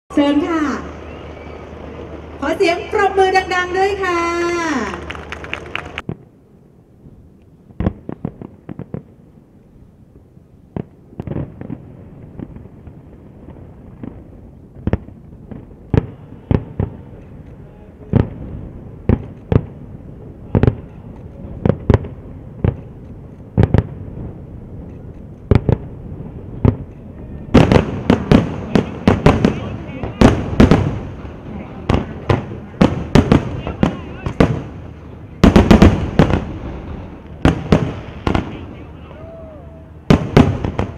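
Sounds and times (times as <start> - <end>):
firework shells bursting: 24.7 - 38.6.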